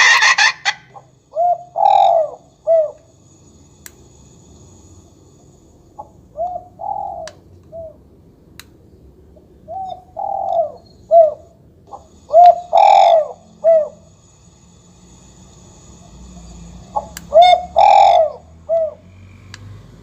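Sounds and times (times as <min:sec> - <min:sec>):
recorded dove coos through speaker: 0:09.7 - 0:14.0, 0:17.0 - 0:19.0.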